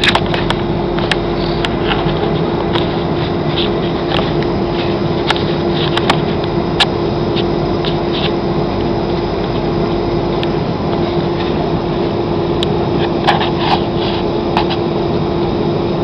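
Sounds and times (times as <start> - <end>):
airliner cabin noise: 0.0 - 16.0.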